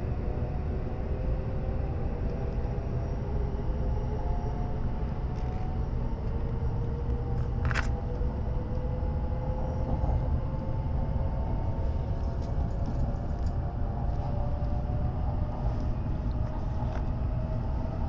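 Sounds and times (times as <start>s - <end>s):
train running low rumble: 0.0s - 18.0s.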